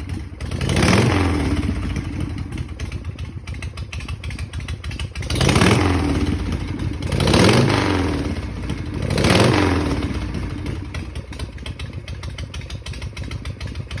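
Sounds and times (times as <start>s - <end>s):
motorcycle engine revving and idling: 0.0s - 14.0s.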